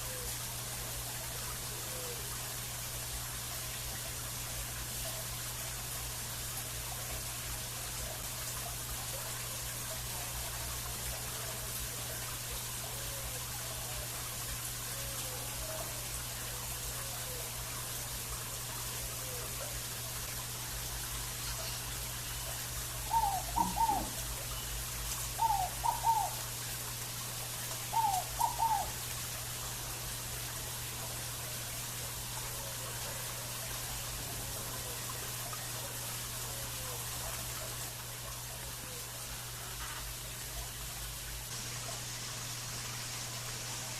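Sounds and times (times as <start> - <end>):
steady hiss: 0.0 - 43.9
distant birds calling: 21.4 - 26.5, 27.9 - 28.9
dove calling: 22.5 - 26.5, 27.9 - 29.0.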